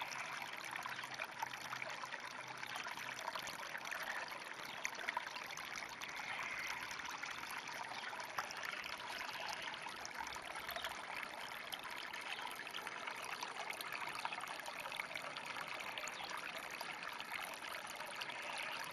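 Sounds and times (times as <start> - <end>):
small ticks and splashes: 0.0 - 18.9
water trickling: 0.0 - 18.9.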